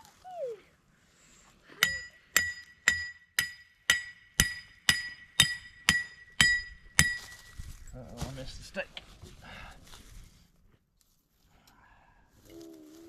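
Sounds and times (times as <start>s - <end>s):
hammer striking metal stake: 1.8s - 7.6s.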